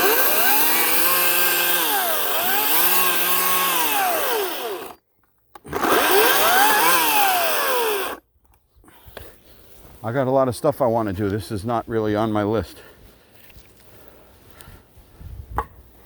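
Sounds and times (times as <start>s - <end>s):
electric chainsaw running: 0.0s - 5.0s, 5.6s - 8.2s.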